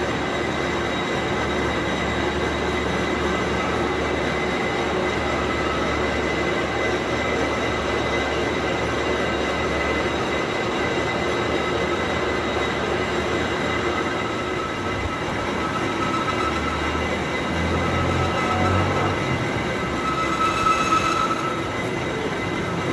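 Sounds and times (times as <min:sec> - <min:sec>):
high whine: 0:00.0 - 0:22.9
workshop machinery grinding: 0:12.8 - 0:22.9.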